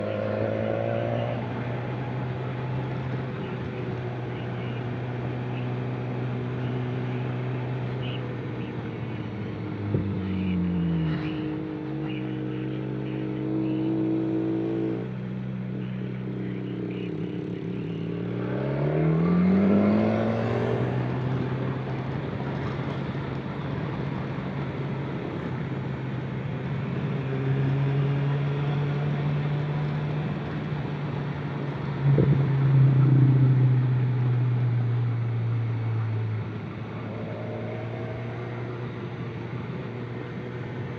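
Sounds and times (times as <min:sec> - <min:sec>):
vehicle engine revving: 0:09.7 - 0:21.8.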